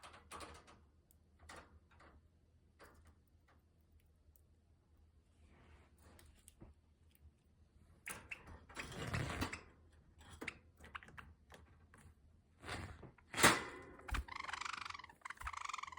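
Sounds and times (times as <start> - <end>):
buzzy bird call: 14.1 - 15.9.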